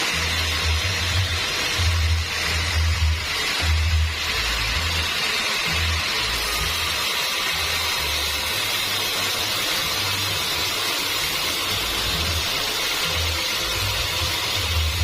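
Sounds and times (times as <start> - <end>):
sawmill cutting through log: 0.0 - 15.0.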